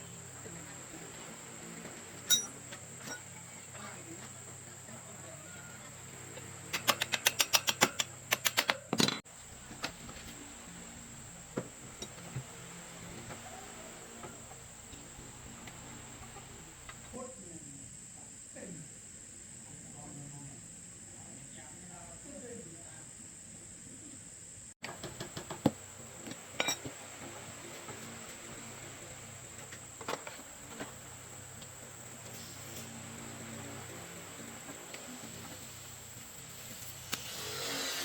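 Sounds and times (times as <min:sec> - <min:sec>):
high insect trill: 0:09.3 - 0:18.8, 0:24.9 - 0:38.0.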